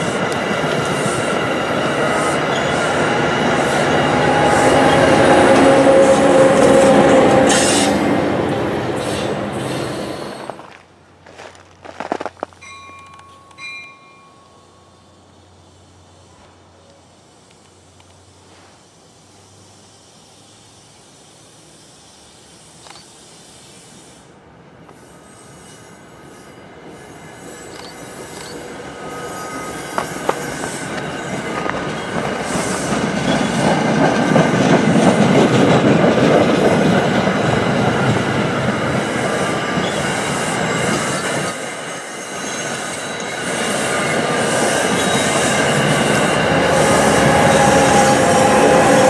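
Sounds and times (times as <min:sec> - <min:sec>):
high wheel squeal: 0:00.0 - 0:10.6, 0:24.9 - 0:33.9, 0:39.2 - 0:49.0
train wheels rumbling on rails: 0:00.0 - 0:14.4, 0:15.2 - 0:49.0.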